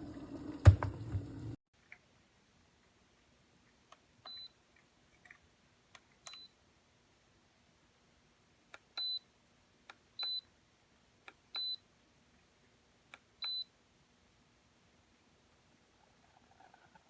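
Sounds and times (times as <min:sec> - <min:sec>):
kettle button click: 0:00.6 - 0:01.2.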